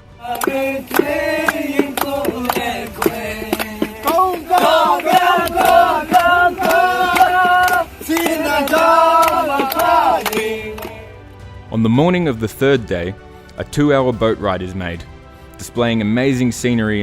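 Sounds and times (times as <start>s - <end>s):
steady percussion strikes: 0.0s - 16.2s
group of voices singing: 0.1s - 11.3s.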